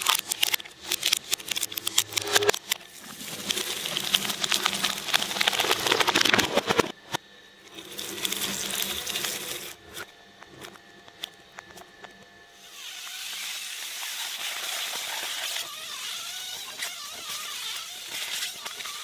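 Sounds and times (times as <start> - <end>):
shredder crunching: 0.0 - 7.1, 12.7 - 19.0.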